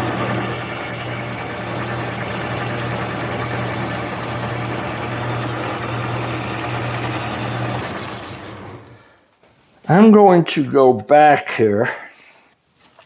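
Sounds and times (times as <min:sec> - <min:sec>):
file scraping spinning metal: 0:00.0 - 0:09.1
metal lathe motor humming: 0:00.0 - 0:09.1.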